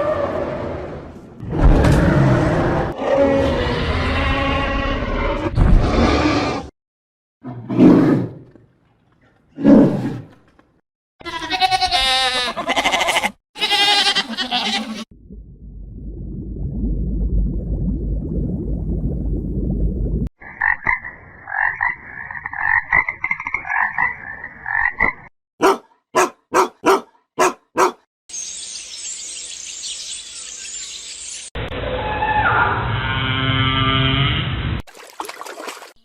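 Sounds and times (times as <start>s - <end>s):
low rumbling noise: 15.1s - 20.3s.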